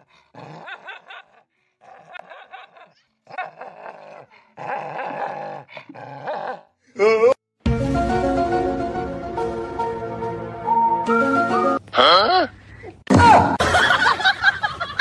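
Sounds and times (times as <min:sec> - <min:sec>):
dog growling: 0:00.0 - 0:06.7.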